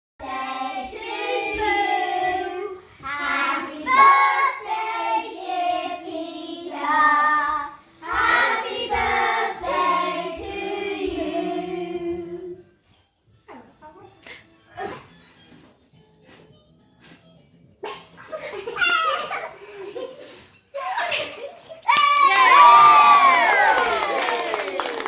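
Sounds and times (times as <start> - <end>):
people singing: 0.2 - 12.7.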